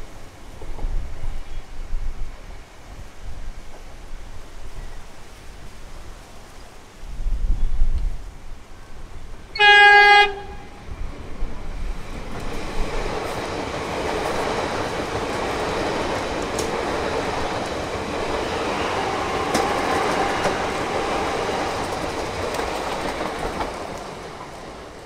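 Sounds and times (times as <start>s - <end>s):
train running past: 8.6s - 25.0s
wheels clicking over rail joints: 11.1s - 25.0s.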